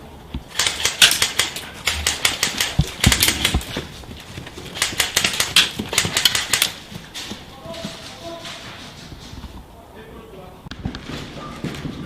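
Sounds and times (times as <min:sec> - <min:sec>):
rapid sharp clicks: 0:00.5 - 0:03.8, 0:04.4 - 0:07.0.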